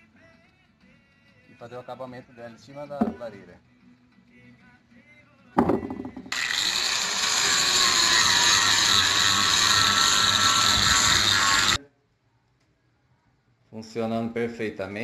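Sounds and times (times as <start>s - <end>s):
power sander sanding wood: 6.3s - 11.8s.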